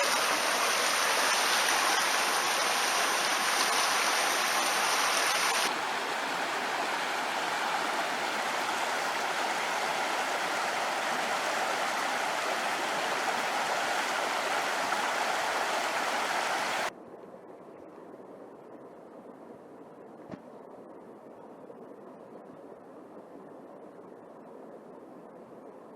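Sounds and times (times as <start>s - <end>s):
stream rushing: 0.0s - 16.9s.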